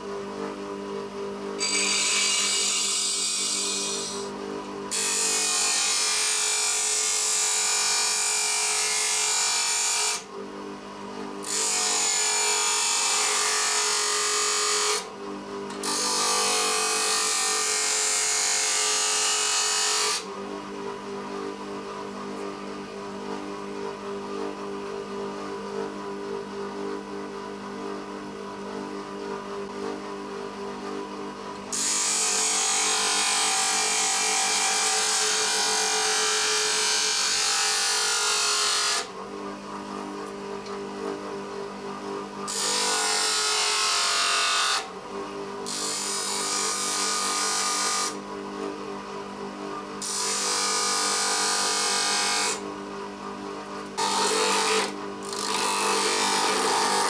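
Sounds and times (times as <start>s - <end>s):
power tool motor humming: 1.6s - 4.3s, 54.0s - 57.0s.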